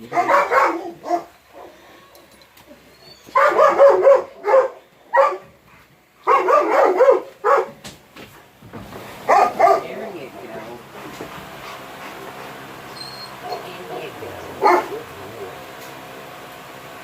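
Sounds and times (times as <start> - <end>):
dog barking: 0.0 - 2.0, 3.3 - 5.5, 6.2 - 7.8, 9.2 - 10.2, 13.4 - 15.2.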